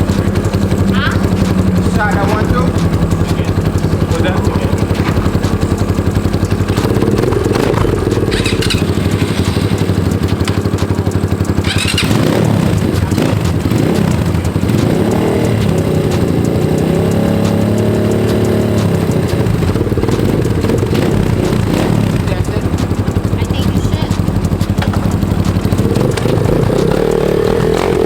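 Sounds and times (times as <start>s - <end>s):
dirt bike engine running: 0.0s - 28.0s.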